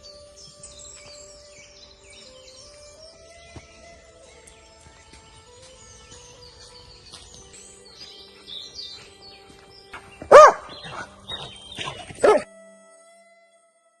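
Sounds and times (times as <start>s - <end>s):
dog barking: 10.3s - 12.5s.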